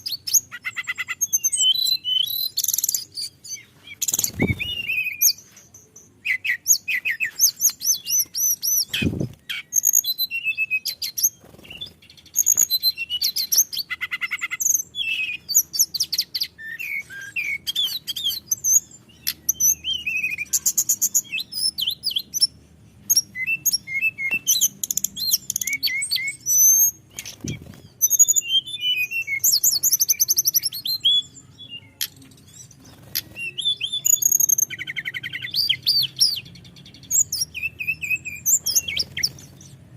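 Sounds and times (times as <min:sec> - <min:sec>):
songbird trilling: 0:00.0 - 0:05.5, 0:23.1 - 0:39.9.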